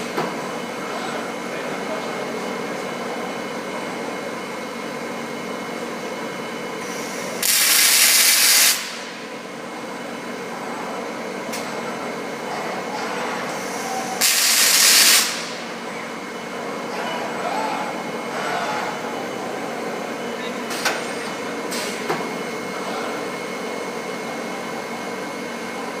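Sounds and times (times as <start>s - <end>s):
machinery noise: 0.0s - 26.0s
loud hiss: 6.9s - 9.0s, 13.6s - 15.5s.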